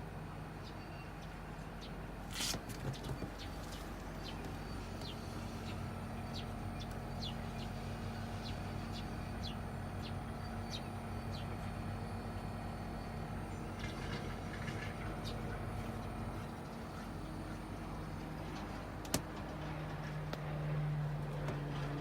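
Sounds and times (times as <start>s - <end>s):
air conditioner unit humming: 0.0s - 22.0s.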